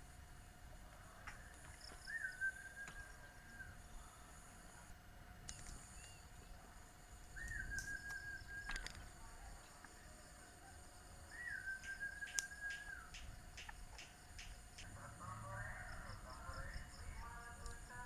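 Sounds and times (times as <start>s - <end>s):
sharp high ticks: 11.8s - 14.9s.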